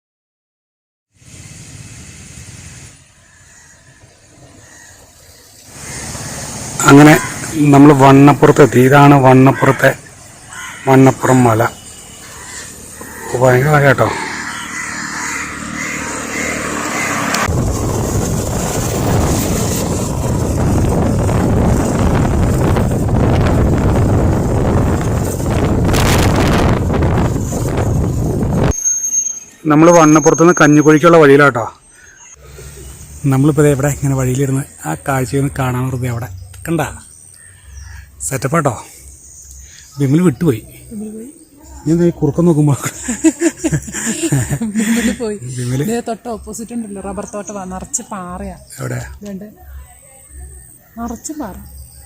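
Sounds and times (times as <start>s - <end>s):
wind and road noise: 1.1s - 52.0s
motorcycle engine rumble: 10.0s - 28.7s
wind buffeting microphone: 16.7s - 28.7s.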